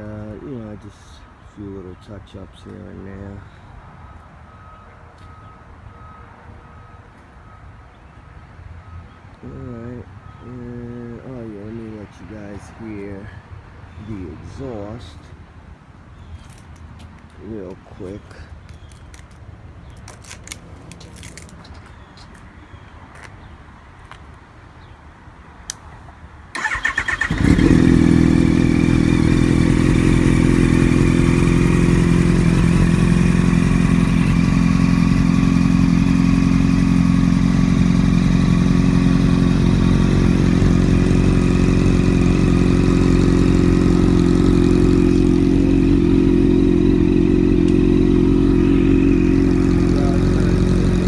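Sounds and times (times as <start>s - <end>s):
motorcycle starter cranking: 26.6s - 31.1s
motorcycle engine idling: 26.6s - 51.0s.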